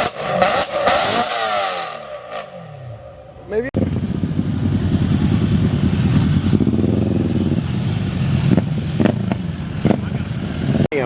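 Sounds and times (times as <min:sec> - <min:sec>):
car engine revving hard: 0:00.0 - 0:02.5.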